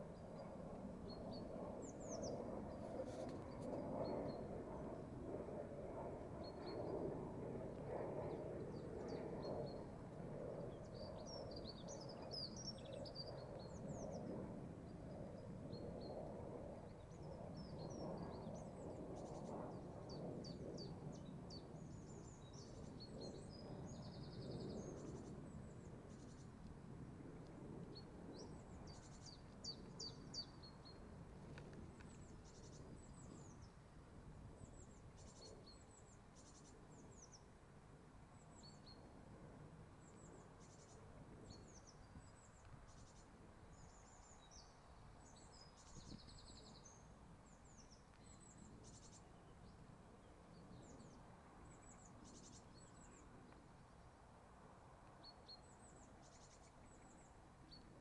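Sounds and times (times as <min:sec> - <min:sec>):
birdsong chirps and trills: 0:10.6 - 0:16.2, 0:27.9 - 0:31.1, 0:40.0 - 0:53.6, 0:55.2 - 0:58.0.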